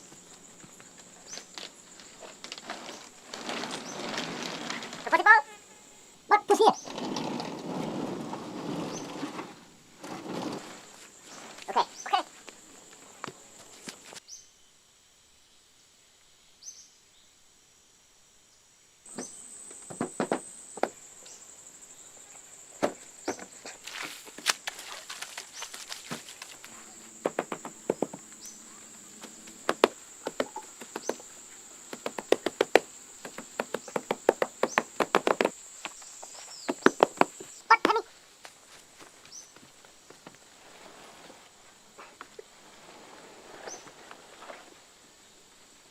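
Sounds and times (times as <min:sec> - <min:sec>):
insects trilling: 0:00.0 - 0:45.9
chopping knocks: 0:27.2 - 0:28.2.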